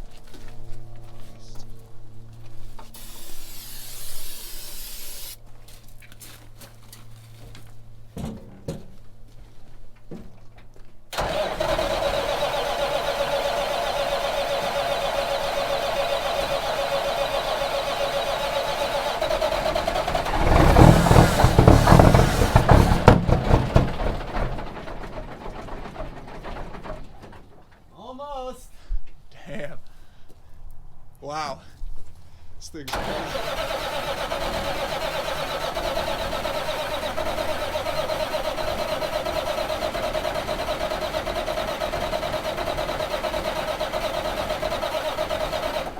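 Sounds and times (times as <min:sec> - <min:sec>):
diesel engine firing: 0:11.1 - 0:27.9, 0:32.9 - 0:45.9
starter motor whine: 0:11.2 - 0:27.4, 0:32.9 - 0:45.9.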